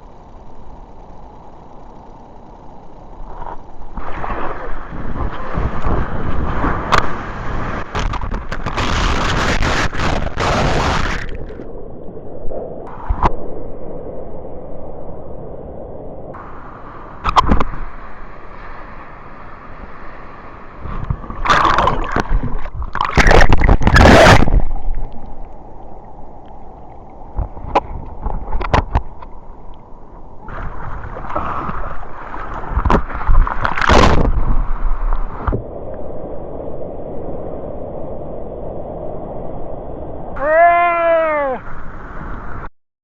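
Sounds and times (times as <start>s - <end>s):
rushes of water: 3.3s - 11.7s, 16.3s - 37.6s
sea water sloshing and splashing: 4.0s - 11.6s, 20.8s - 35.6s.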